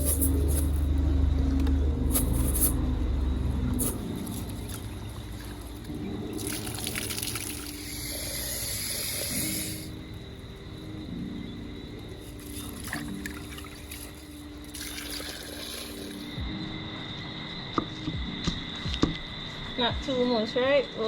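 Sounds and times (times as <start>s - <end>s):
water pouring: 3.7s - 10.0s, 12.2s - 16.4s.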